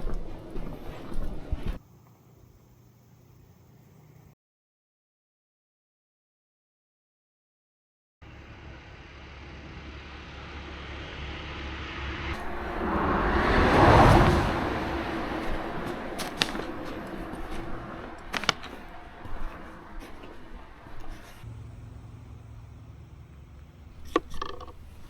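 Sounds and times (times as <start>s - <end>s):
vehicle passing by: 8.2s - 25.0s.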